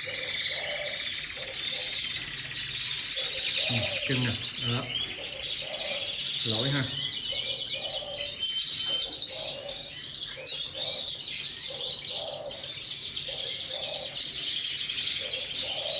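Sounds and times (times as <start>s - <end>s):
lower repeating bird call: 0.0s - 2.3s, 3.0s - 10.0s
canaries chirping and trilling: 0.0s - 15.9s.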